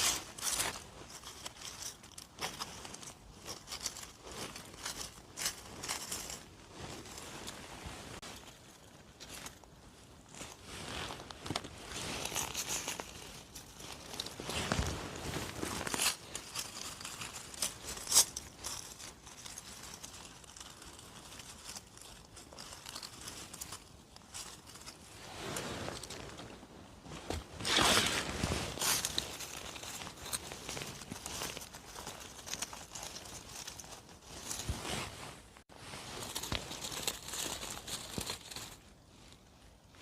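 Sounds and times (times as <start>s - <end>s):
footsteps crunching leaf litter: 0.0s - 7.6s, 27.0s - 38.8s.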